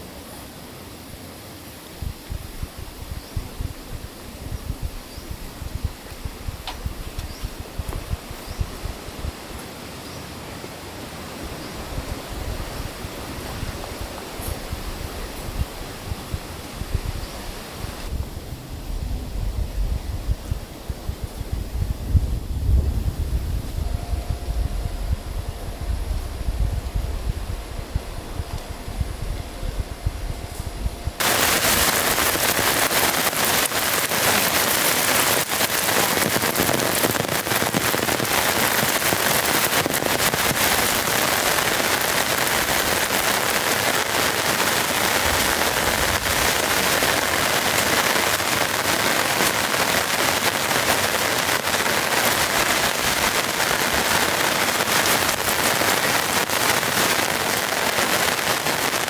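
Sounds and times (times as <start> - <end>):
heavy rain on a tent: 0.0 - 23.9, 24.5 - 59.0
low rumble: 18.1 - 32.5.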